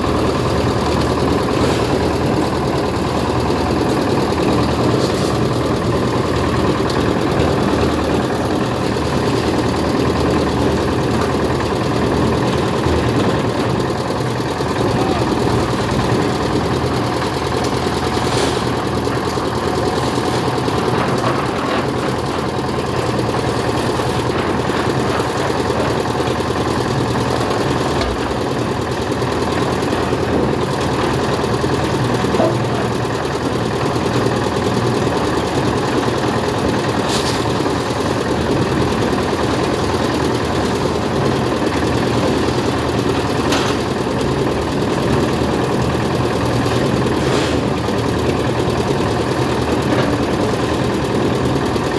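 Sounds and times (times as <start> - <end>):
engine running steadily: 0.0 - 51.9.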